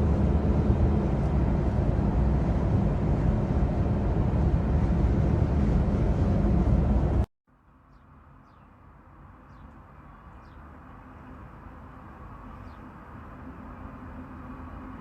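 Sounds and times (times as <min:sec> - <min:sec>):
loud rushing noise: 0:00.0 - 0:07.3
low steady rumble: 0:00.0 - 0:07.3.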